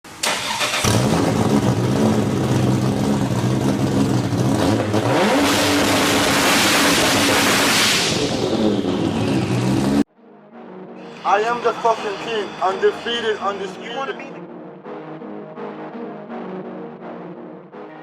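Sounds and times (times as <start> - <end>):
drag car engine revving: 0.2 - 10.1.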